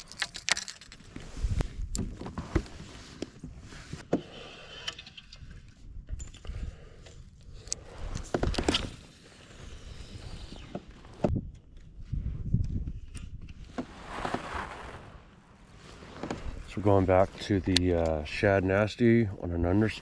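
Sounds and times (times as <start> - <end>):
fishing tackle clicking and rattling: 0.0 - 1.1.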